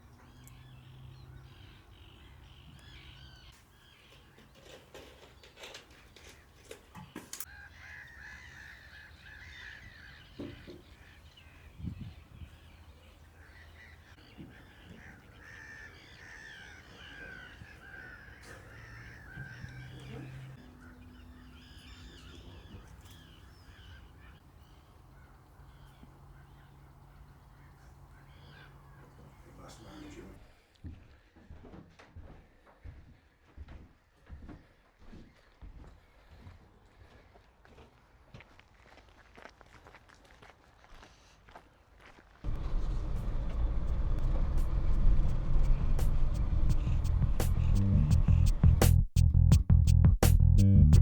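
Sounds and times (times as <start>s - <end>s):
birds making harsh calls: 0.0s - 30.4s.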